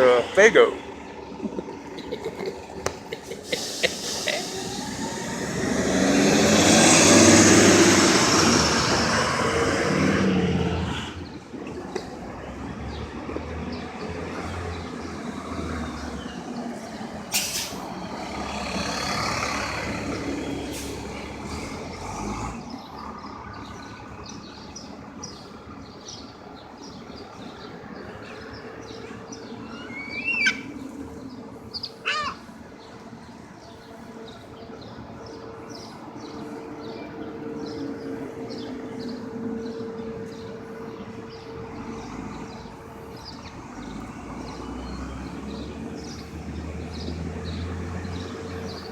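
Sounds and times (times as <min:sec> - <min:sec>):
street traffic: 0:00.0 - 0:48.9
bus air-brake hiss: 0:03.4 - 0:05.2, 0:17.3 - 0:17.8.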